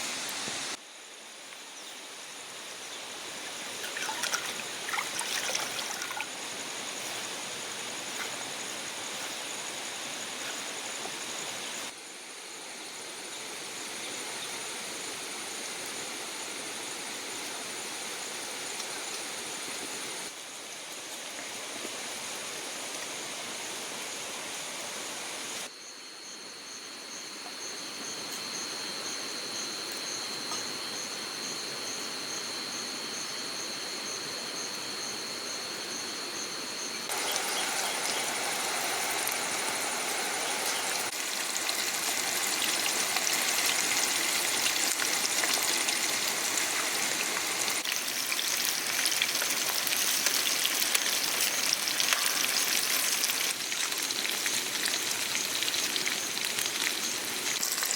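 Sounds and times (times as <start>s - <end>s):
chicken sizzling in hot oil: 37.1s - 57.9s.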